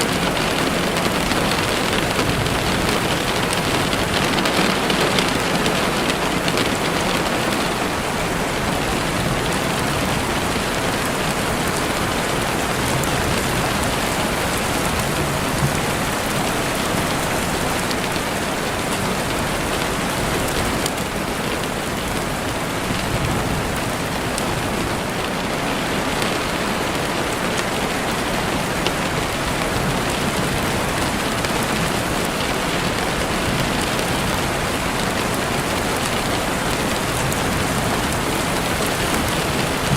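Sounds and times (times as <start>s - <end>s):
raindrop ticks: 0.0s - 8.0s
heavy rain on a window: 0.0s - 39.9s.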